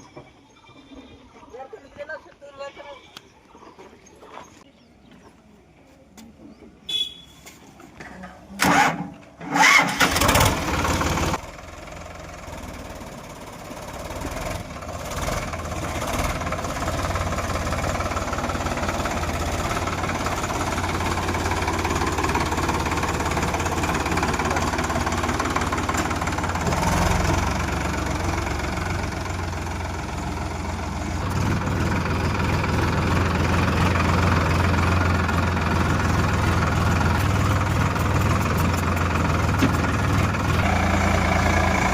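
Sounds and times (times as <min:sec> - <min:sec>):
tractor diesel engine starting: 0:08.5 - 0:41.9.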